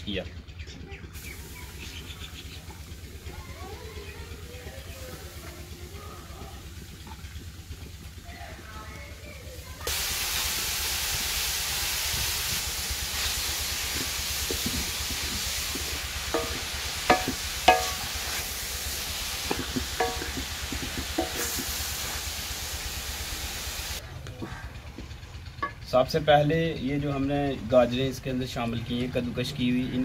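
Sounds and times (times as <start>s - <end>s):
carrots sizzling in a pan: 9.5s - 24.0s
wooden spoon knocking on pan: 14.0s - 18.2s, 19.4s - 21.7s.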